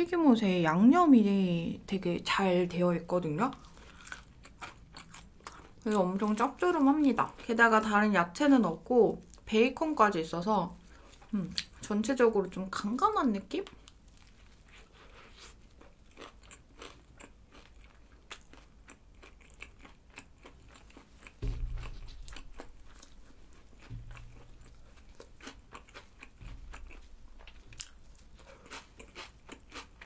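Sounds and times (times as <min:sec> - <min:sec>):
crunchy chewing: 0:03.6 - 0:05.8, 0:13.8 - 0:30.0
dull low thuds: 0:21.4 - 0:25.5, 0:26.3 - 0:27.8.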